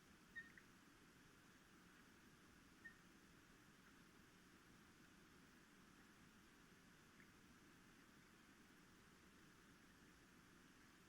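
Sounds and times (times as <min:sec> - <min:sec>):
faint steady hiss: 0:00.0 - 0:11.0
faint high-pitched peep: 0:00.3 - 0:00.7, 0:02.8 - 0:03.1.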